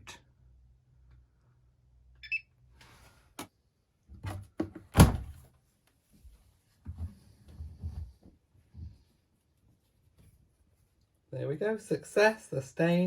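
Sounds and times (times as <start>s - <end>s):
washing machine beep: 2.2s - 2.5s
washing machine door thunk: 4.6s - 5.4s.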